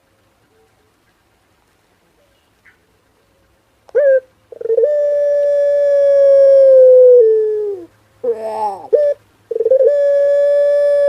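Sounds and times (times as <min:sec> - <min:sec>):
dove cooing: 0:03.9 - 0:11.0.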